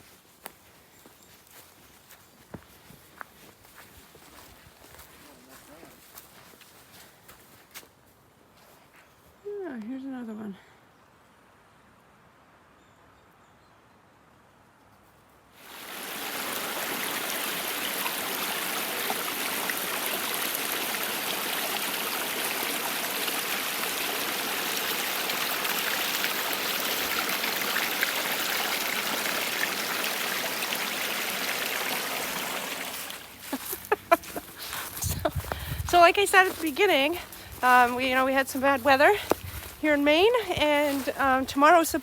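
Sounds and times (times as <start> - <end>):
stream water running: 0.0 - 7.0, 15.6 - 42.0.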